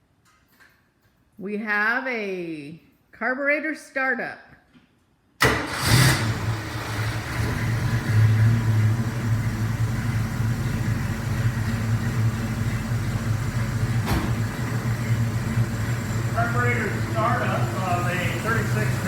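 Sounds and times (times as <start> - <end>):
engine idling: 5.4 - 19.0.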